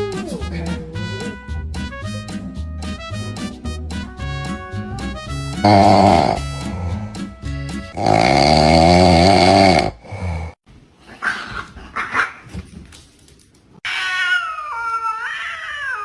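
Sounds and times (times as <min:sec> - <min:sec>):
animal growling call: 0:05.7 - 0:06.9.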